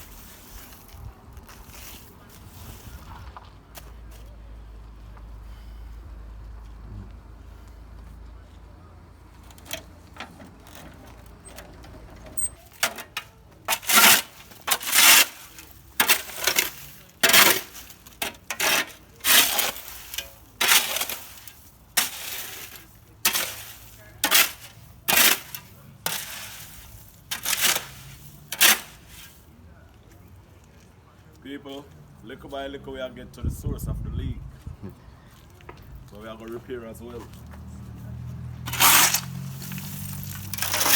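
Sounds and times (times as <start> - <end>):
hand tool scraping gravel: 0.0 - 4.4, 9.4 - 29.7, 38.5 - 40.9.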